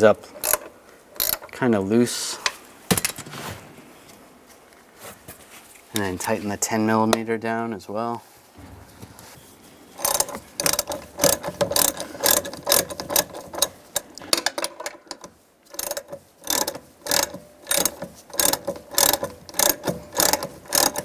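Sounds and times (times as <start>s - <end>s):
hand ratchet clicking: 0.0s - 1.6s, 6.0s - 6.4s, 10.0s - 21.0s.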